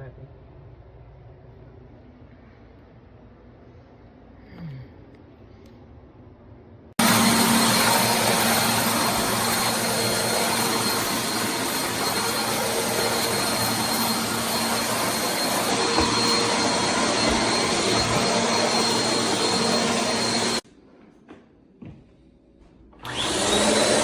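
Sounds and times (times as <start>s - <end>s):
vacuum cleaner running: 7.0s - 20.6s, 23.0s - 24.0s.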